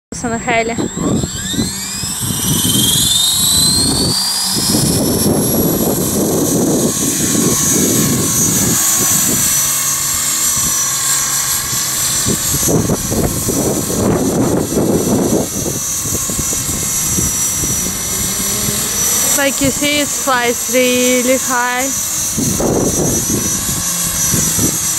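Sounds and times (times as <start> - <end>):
wind buffeting microphone: 0.1 - 20.9, 21.9 - 24.9
rc helicopter motor and rotor whine: 0.2 - 24.9.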